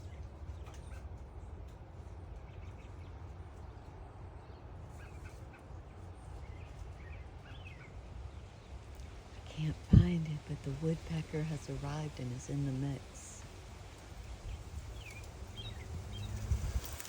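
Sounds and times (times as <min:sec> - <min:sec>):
birds chirping: 0:02.3 - 0:17.0
steady low rumble: 0:08.0 - 0:17.0.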